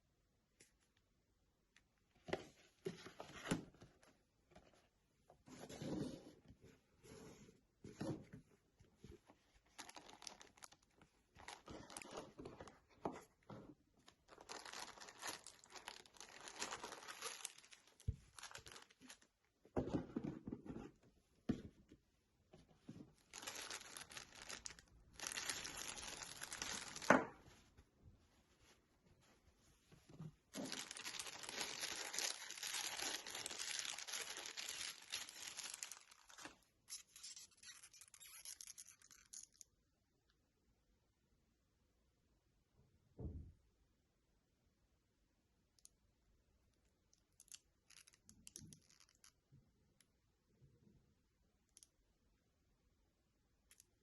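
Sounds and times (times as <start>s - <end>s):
wrapping crinkling and tearing: 9.6s - 12.7s, 14.0s - 19.2s, 23.2s - 27.1s, 30.5s - 39.6s.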